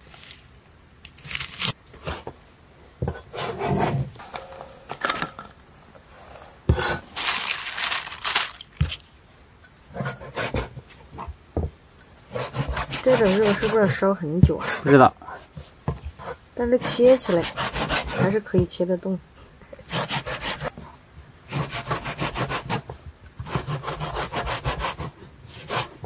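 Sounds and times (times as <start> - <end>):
knife sawing through meat: 12.3 - 13.8, 16.7 - 18.4, 19.9 - 20.7.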